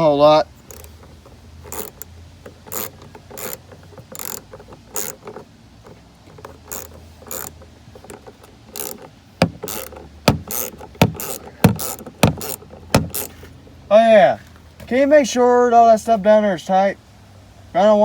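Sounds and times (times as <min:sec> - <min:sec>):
hand ratchet clicking: 0:00.6 - 0:13.4.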